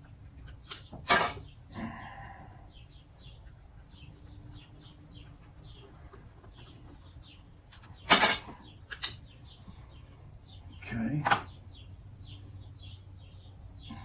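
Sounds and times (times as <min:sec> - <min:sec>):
small birds chirping: 0:00.0 - 0:14.0
sharp clack of tools: 0:00.7 - 0:01.4, 0:08.1 - 0:09.2.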